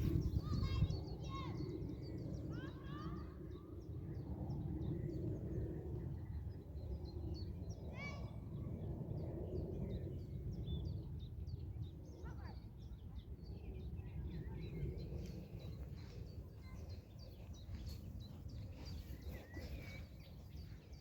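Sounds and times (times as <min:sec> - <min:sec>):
steady low rumble: 0:00.0 - 0:01.2, 0:13.4 - 0:21.0
songbirds chirping and singing: 0:00.0 - 0:21.0.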